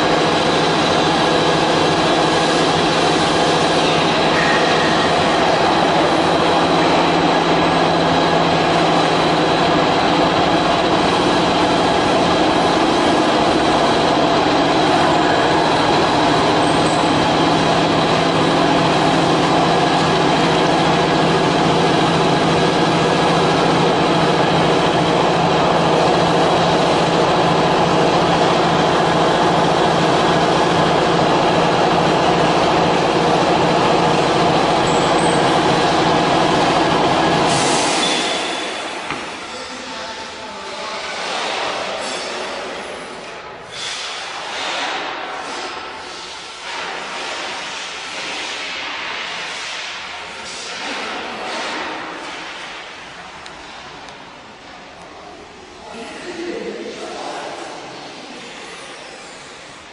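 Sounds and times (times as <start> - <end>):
cnc router running: 0.0 - 43.2.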